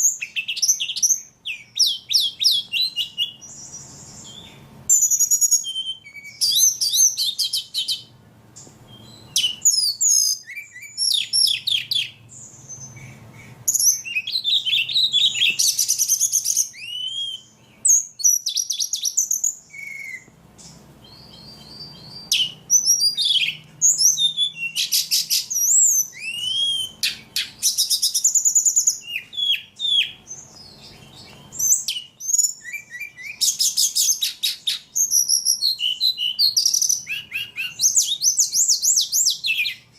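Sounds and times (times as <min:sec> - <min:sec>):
songbird singing trills and whistles: 0:00.0 - 0:39.9.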